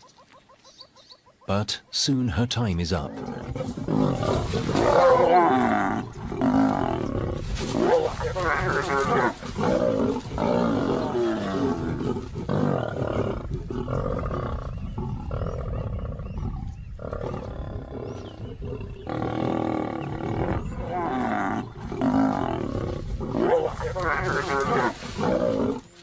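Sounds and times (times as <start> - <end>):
lions growling and snarling: 3.0 - 26.0.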